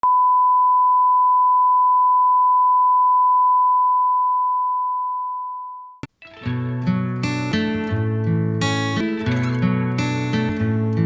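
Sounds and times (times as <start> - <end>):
music: 6.0 - 11.0.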